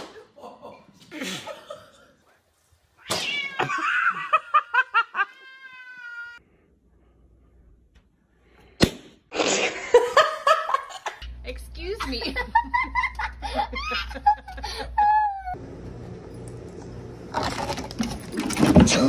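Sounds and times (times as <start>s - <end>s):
cat meowing: 3.0s - 3.8s, 5.2s - 6.4s.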